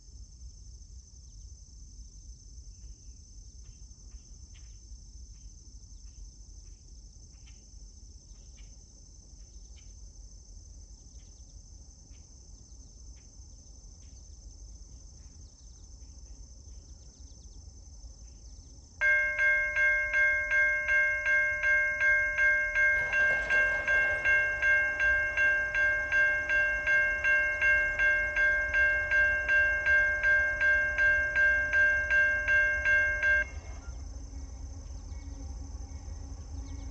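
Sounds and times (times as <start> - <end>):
railroad crossing bell ringing: 19.0 - 34.0.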